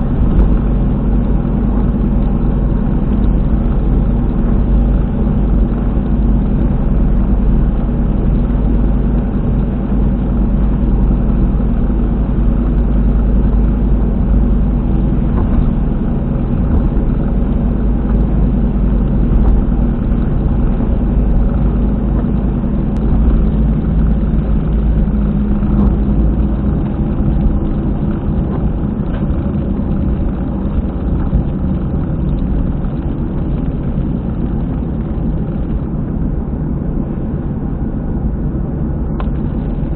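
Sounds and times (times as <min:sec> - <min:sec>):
car driving heard from inside: 0:00.0 - 0:39.9
wheel bearing rumble: 0:00.0 - 0:39.9.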